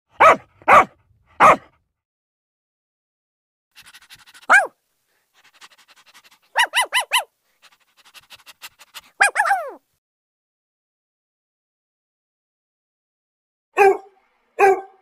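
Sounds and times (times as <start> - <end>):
puppy panting: 3.8 - 4.7, 5.3 - 9.8
puppy yipping: 3.8 - 4.8, 5.4 - 9.8.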